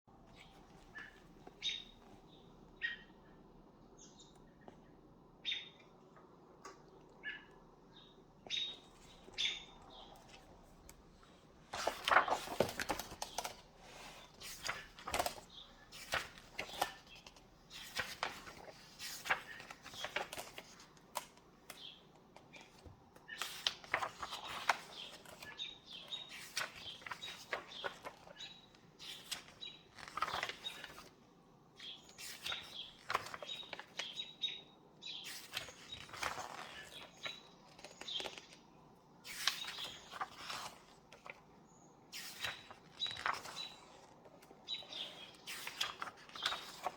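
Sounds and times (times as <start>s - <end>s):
book pages turning: 8.6s - 31.2s, 31.8s - 34.4s, 35.2s - 46.9s.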